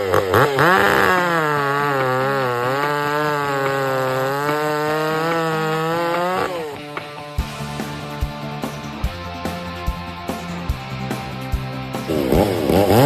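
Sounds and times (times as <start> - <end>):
chainsaw cutting wood: 0.0 - 8.1, 12.1 - 13.0.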